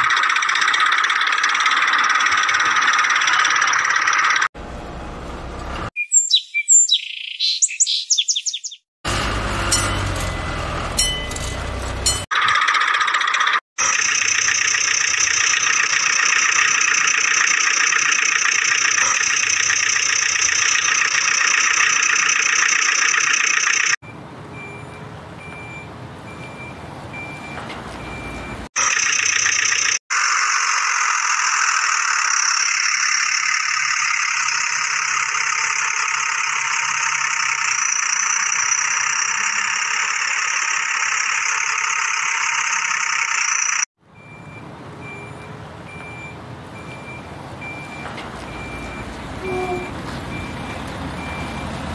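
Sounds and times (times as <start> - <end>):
vehicle engine running: 9.0 - 12.3, 33.3 - 51.9
faint reversing alarm beeps: 24.5 - 28.6, 43.7 - 51.7.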